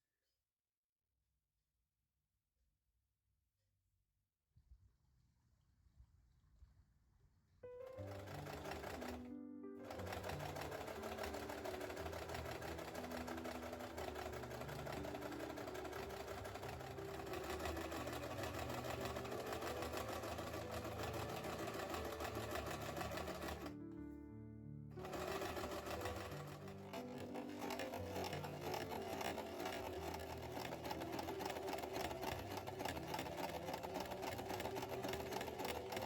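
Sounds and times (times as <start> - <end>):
soft background music: 7.6 - 36.0
small machine ticking clatter: 8.0 - 9.2, 9.8 - 23.7, 25.0 - 36.0.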